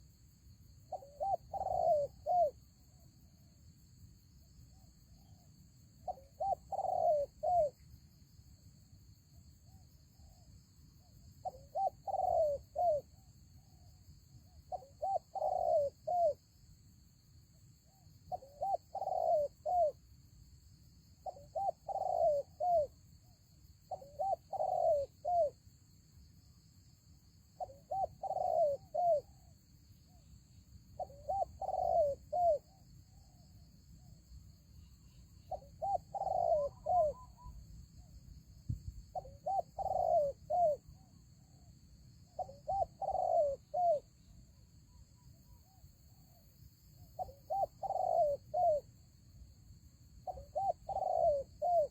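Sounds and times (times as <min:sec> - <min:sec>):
dove cooing: 0:00.9 - 0:02.6, 0:06.0 - 0:07.8, 0:11.4 - 0:13.1, 0:14.7 - 0:16.4, 0:18.3 - 0:20.0, 0:21.2 - 0:23.0, 0:23.9 - 0:25.6, 0:27.6 - 0:29.4, 0:31.0 - 0:33.3, 0:35.0 - 0:37.6, 0:39.1 - 0:41.0, 0:42.3 - 0:44.1, 0:47.2 - 0:48.9, 0:50.2 - 0:51.9.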